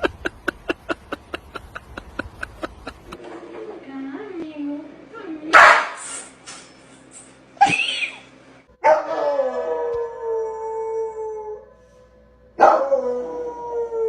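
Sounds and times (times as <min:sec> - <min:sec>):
dog howling: 0:08.8 - 0:11.6.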